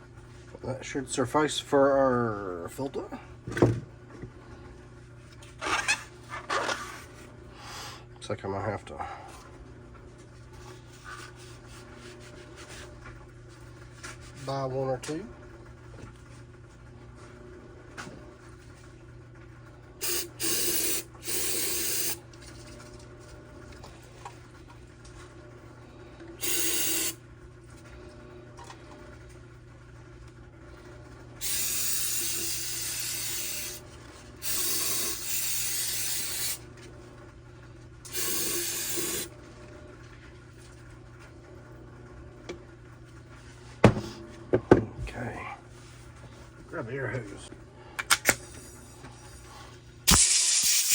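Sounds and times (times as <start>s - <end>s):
aerosol spray hissing: 31.4s - 33.8s, 34.4s - 36.6s, 38.1s - 39.3s, 50.1s - 50.9s.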